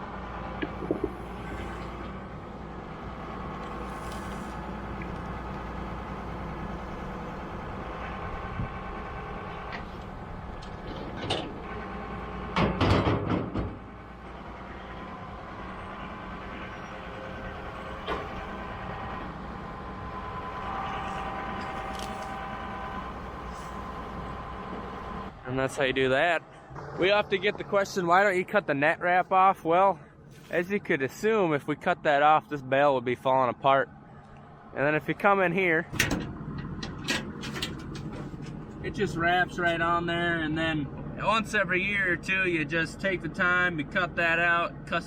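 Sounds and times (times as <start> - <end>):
farm machinery engine running: 0.0 - 29.6
loud metal clanks: 12.6 - 13.8.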